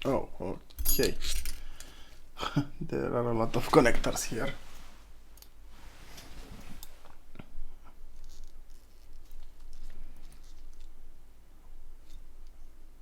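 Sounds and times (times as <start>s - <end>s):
small parts clicking and scratching: 8.1s - 11.0s, 12.0s - 12.6s.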